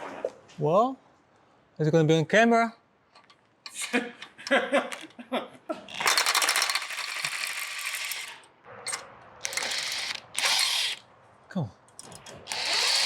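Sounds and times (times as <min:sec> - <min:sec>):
metal tools clinking: 0:05.9 - 0:11.0
power ratchet rattling on a bolt: 0:05.9 - 0:11.0, 0:12.0 - 0:13.0.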